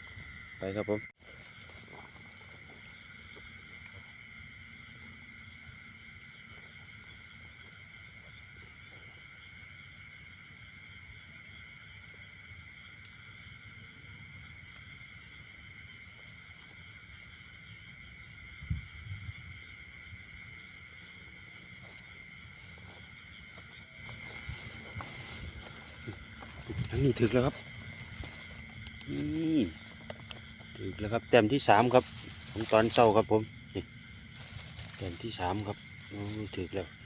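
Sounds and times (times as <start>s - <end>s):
low rustling: 21.5s - 36.9s.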